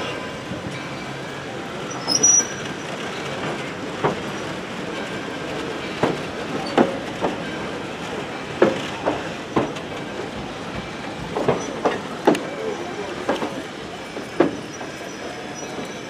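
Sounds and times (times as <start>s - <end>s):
train wheels rumbling on rail: 0.0s - 16.0s
wheels clacking over rail joints: 0.0s - 16.0s
high wheel squeal: 1.8s - 3.4s, 11.5s - 16.0s.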